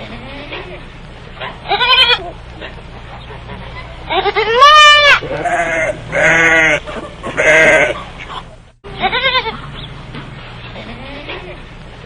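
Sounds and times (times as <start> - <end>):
animal bleating: 0.0 - 0.8, 1.6 - 2.4, 3.5 - 8.1, 8.9 - 9.7, 10.7 - 11.6.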